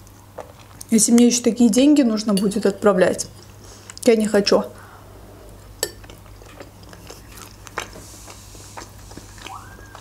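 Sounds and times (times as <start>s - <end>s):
chewing fried dumplings: 5.6s - 10.0s.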